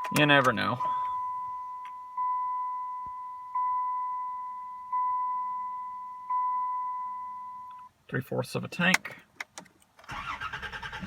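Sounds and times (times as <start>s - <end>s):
dashboard warning chime: 0.0s - 8.0s.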